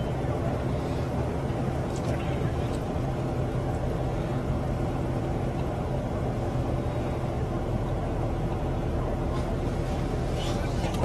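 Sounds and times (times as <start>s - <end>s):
road and wind noise: 0.0s - 11.0s
vehicle engine humming: 0.0s - 11.0s.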